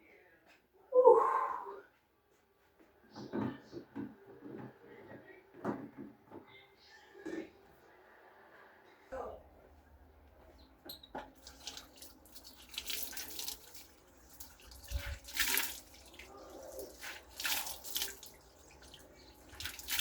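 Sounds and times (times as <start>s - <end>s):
tap water splashing into sink: 11.2s - 20.0s.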